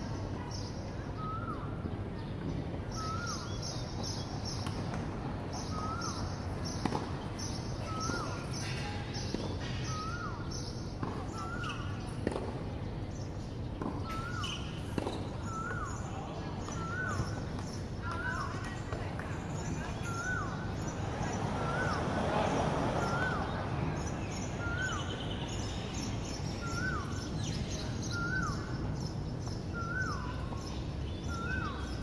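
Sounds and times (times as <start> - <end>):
steady outdoor hum: 0.0 - 32.0
bird calling: 14.0 - 18.7, 23.0 - 28.8, 29.4 - 32.0.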